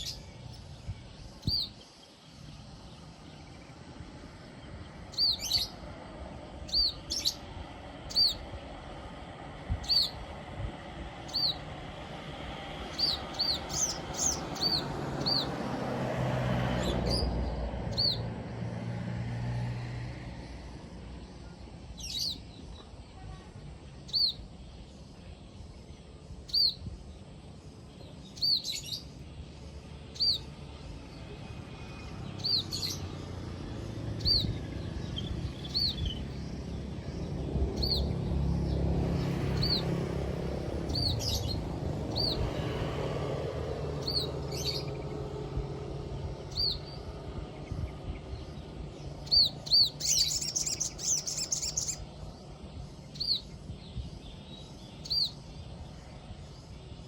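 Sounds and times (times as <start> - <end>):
high arched bird chirps: 0.0 - 3.7, 4.6 - 5.9, 6.6 - 8.5, 9.7 - 10.3, 11.2 - 11.7, 12.8 - 15.6, 17.9 - 18.3, 22.0 - 22.9, 23.9 - 24.9, 25.8 - 27.2, 28.1 - 30.6, 31.9 - 33.3, 34.1 - 38.3, 40.8 - 42.5, 44.0 - 45.2, 46.4 - 52.4, 53.0 - 55.8.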